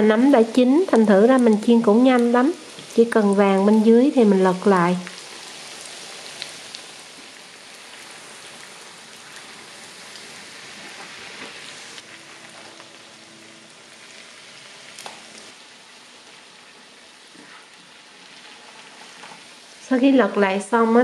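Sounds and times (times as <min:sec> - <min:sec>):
mushrooms sizzling in oil: 0:00.0 - 0:21.0.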